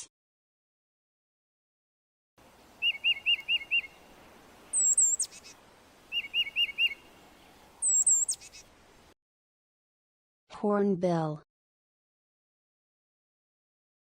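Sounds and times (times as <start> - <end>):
titmouse song: 2.8 - 4.0, 4.7 - 7.0, 7.8 - 8.7.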